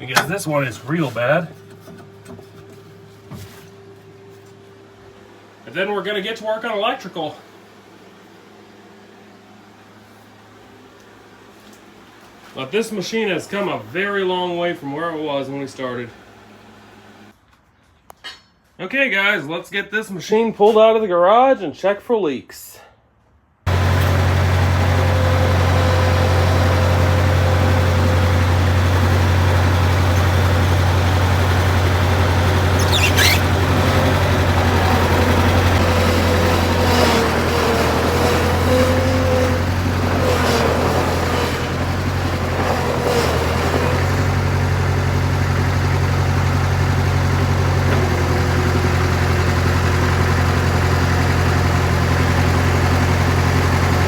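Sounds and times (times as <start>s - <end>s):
diesel engine running: 0.0s - 6.3s, 23.7s - 54.0s
brief high squeal: 32.7s - 33.6s.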